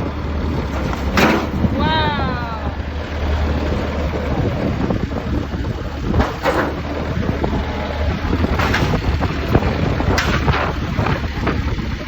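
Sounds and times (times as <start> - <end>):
tractor engine running: 0.0 - 12.0
wind noise on microphone: 3.4 - 12.0.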